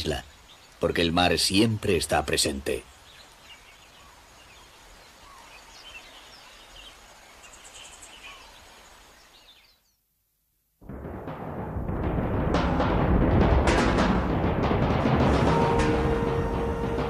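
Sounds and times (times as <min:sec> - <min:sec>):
bird chirps: 0:02.4 - 0:10.0
music with timpani drums: 0:10.8 - 0:17.0.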